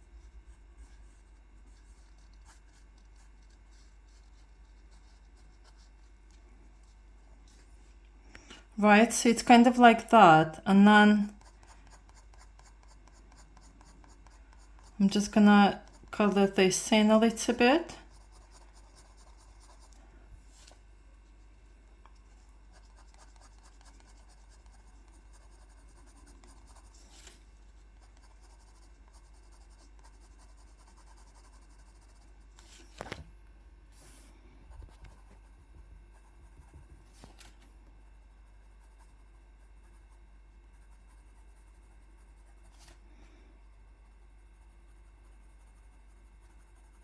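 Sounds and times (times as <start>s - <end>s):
drawing tool scratching on paper: 0.2s - 7.0s, 11.2s - 20.0s, 22.3s - 33.0s, 43.9s - 47.0s.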